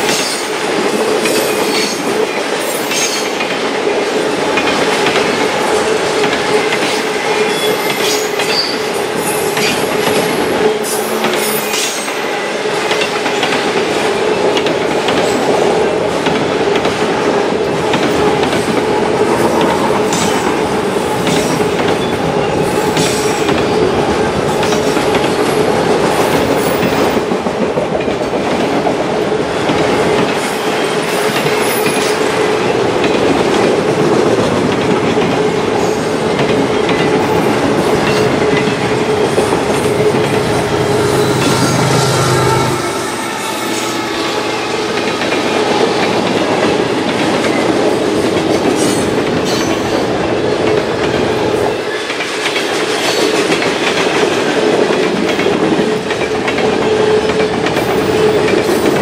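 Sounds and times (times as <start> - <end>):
freight train wheels rumbling: 0.0 - 59.0
rail joint clacks: 0.0 - 59.0
ringing whine from wheels: 39.8 - 45.4.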